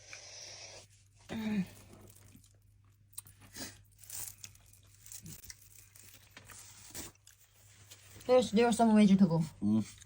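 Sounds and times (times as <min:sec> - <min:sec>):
rustling and crinkling: 0:01.2 - 0:08.9.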